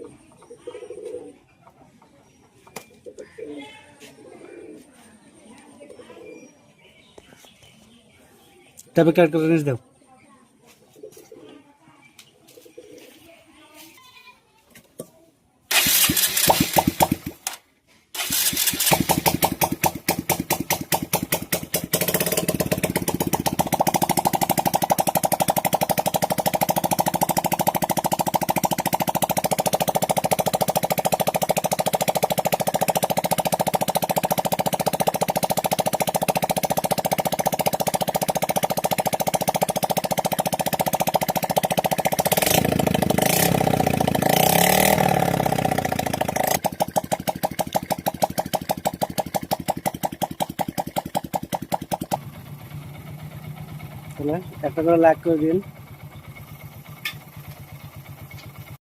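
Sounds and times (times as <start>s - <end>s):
motorcycle engine running: 15.7s - 58.8s.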